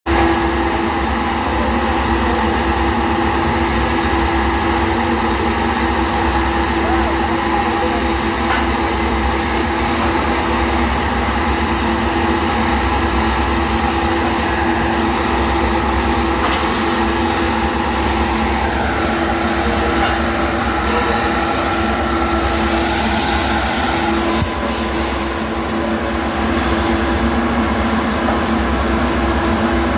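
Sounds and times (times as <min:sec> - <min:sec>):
machinery drone: 0:00.2 - 0:29.9
high steady whine: 0:13.1 - 0:29.9.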